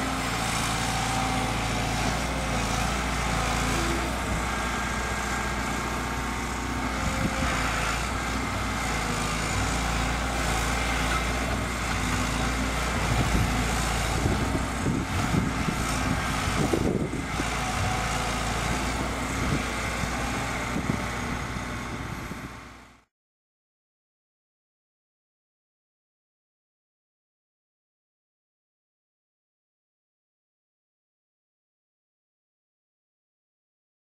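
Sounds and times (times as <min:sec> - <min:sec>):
excavator diesel engine running: 0:00.0 - 0:23.1.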